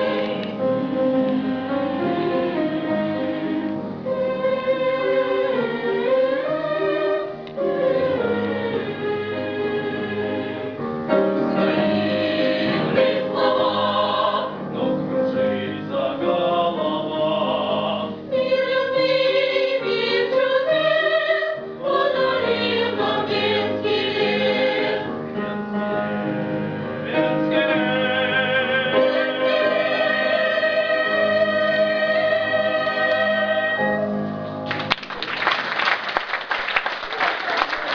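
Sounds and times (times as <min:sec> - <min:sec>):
vocal ensemble singing: 0:00.0 - 0:34.4
instrumental accompaniment: 0:00.0 - 0:35.2
audience applause: 0:34.7 - 0:37.9.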